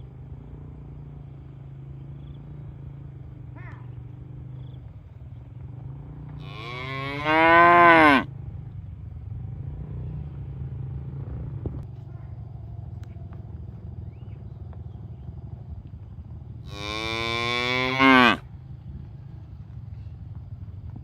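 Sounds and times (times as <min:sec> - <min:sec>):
cow mooing: 0:06.4 - 0:08.3, 0:16.7 - 0:18.4
steady low rumble: 0:08.6 - 0:16.7.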